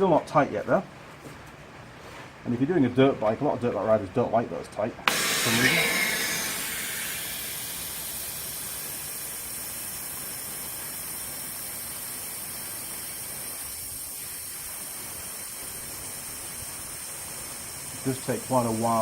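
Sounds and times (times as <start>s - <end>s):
compressed air hissing: 5.1s - 19.0s.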